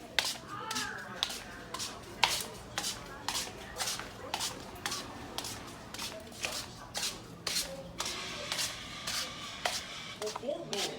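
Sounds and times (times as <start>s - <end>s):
slippers shuffling across floor: 0.0s - 10.9s.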